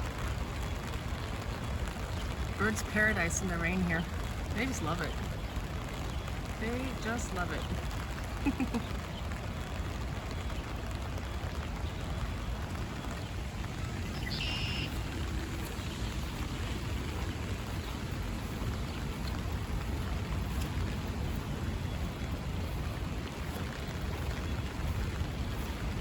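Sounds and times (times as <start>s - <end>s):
steady rain falling: 0.0s - 26.0s
high bird call: 14.1s - 15.3s.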